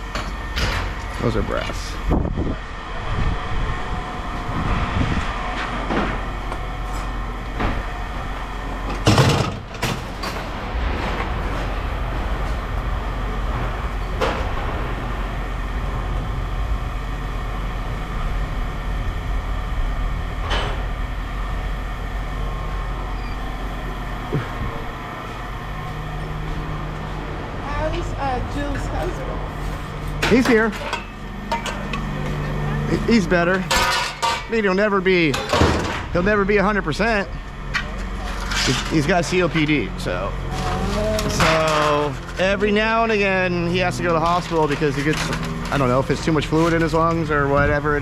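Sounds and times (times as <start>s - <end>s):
low mechanical hum: 0.0s - 48.0s
scrap metal clanking: 29.0s - 32.1s, 33.5s - 34.6s.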